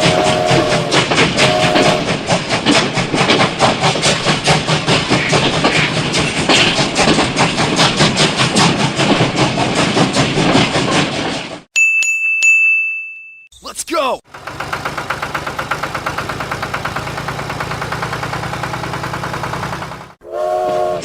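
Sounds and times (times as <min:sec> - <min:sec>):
rapid mechanical clattering: 0:14.3 - 0:20.2.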